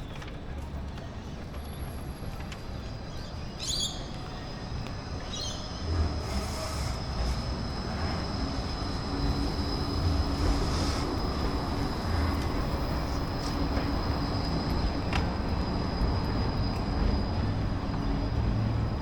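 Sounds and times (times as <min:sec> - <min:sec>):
passing vehicle rumble: 0:05.6 - 0:19.0.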